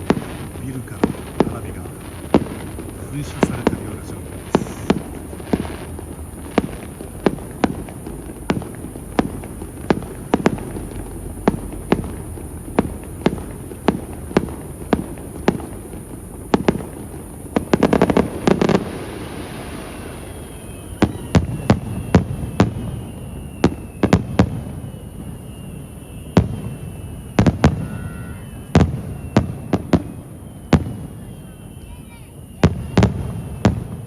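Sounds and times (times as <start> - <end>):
fireworks shells bursting: 0.0 - 24.6.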